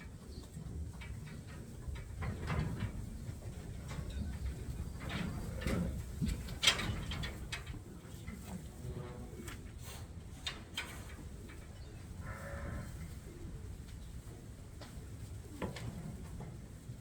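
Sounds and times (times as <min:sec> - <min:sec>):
gates and hooves rattling: 0:00.0 - 0:17.0.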